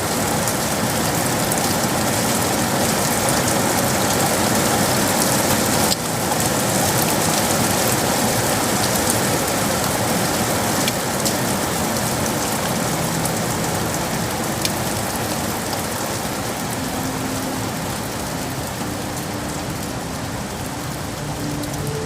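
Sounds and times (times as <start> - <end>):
rain on hard surfaces: 0.0 - 22.0.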